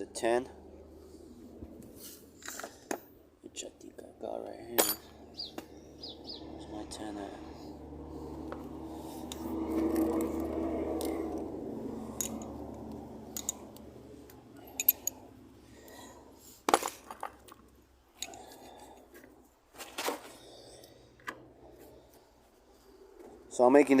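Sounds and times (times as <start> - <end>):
metal tools clinking: 4.7 - 5.2, 12.1 - 12.6, 13.3 - 13.8, 14.5 - 15.3, 18.1 - 18.6.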